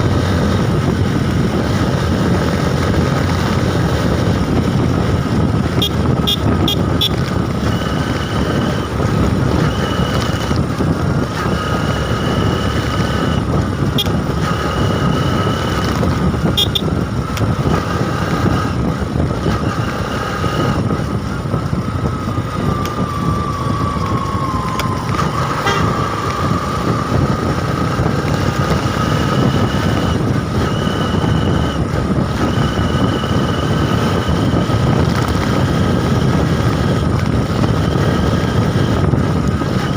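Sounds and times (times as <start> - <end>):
motorbike engine: 0.0 - 39.9
wind noise: 0.0 - 39.9
vehicle horns tooting: 5.8 - 8.9, 12.2 - 15.4, 16.4 - 17.0, 25.5 - 26.2.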